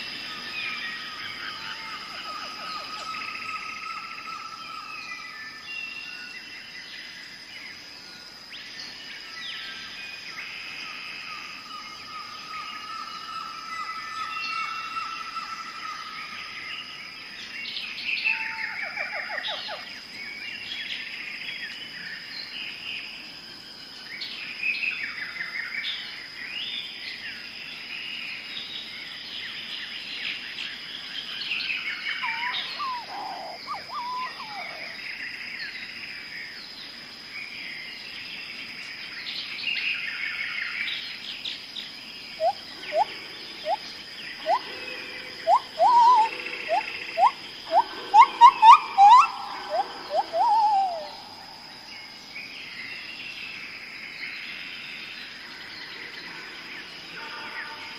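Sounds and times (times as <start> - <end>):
weaver birds chattering: 28.2 - 56.1.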